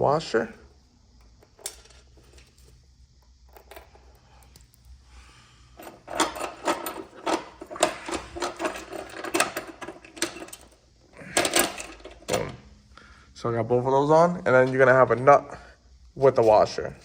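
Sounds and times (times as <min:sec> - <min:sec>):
metal hardware clinking: 0:01.4 - 0:02.6, 0:05.8 - 0:12.6.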